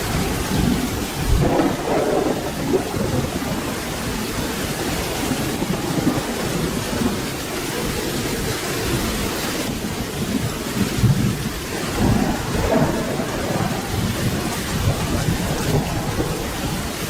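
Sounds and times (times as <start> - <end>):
distant thunder rumble: 0.0 - 17.0
steady rain falling: 0.0 - 17.0.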